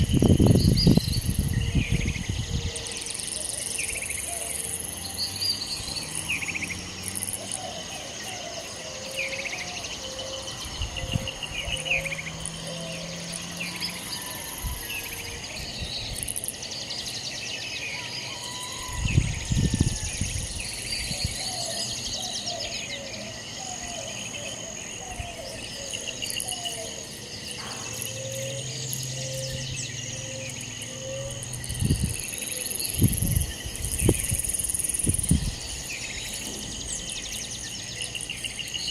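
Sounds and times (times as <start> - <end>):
bird calls: 0.0 - 38.9
insects chirring: 0.0 - 38.9.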